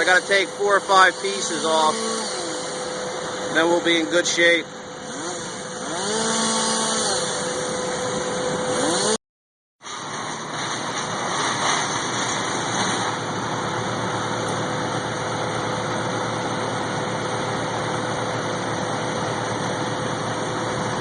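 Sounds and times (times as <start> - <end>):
engine idling: 10.0 - 21.0.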